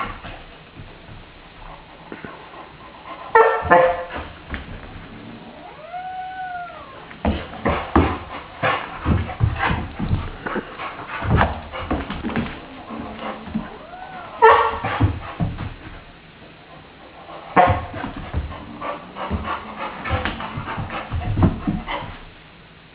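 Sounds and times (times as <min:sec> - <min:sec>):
puppy whining: 0:05.0 - 0:07.2, 0:12.6 - 0:14.6
animal yowl: 0:05.3 - 0:07.1, 0:13.7 - 0:14.4
thumps and scuffling: 0:07.2 - 0:13.8.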